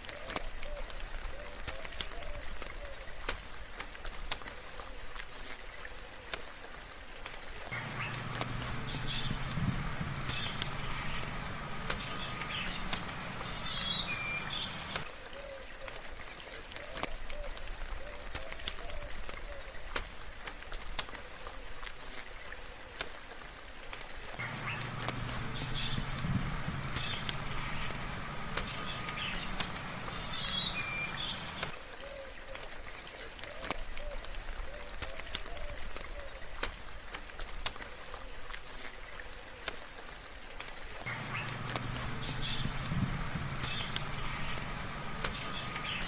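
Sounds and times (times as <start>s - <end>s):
sharp drip-like ticks: 0.0s - 46.0s
soft rain hiss: 0.0s - 46.0s
low rumbling hum: 7.7s - 15.1s, 24.4s - 31.8s, 41.1s - 46.0s
birds chirping and whistling: 7.8s - 15.0s, 24.4s - 31.7s, 41.1s - 46.0s.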